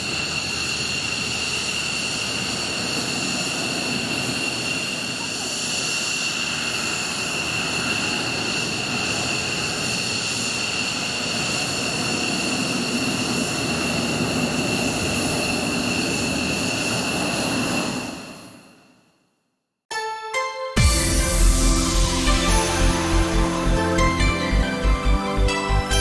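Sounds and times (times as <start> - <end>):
high-pitched engine whine: 0.0 - 18.3, 20.8 - 26.0
jet engines running: 0.0 - 18.4.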